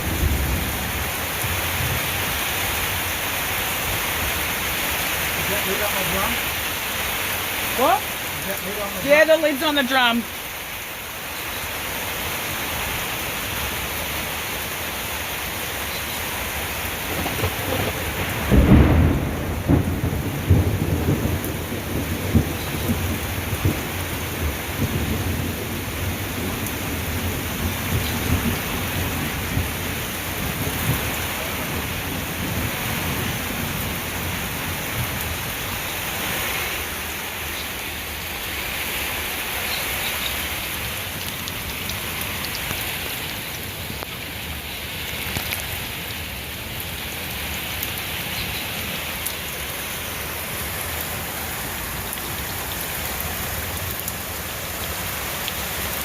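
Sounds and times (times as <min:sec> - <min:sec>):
thunder rumbling: 0:00.0 - 0:03.0, 0:16.9 - 0:35.8
heavy rain pouring: 0:00.0 - 0:56.0.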